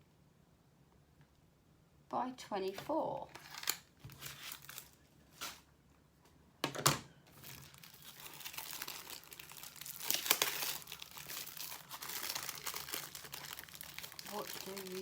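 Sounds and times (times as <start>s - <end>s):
plastic packaging crinkling: 3.3s - 5.7s, 7.3s - 15.0s.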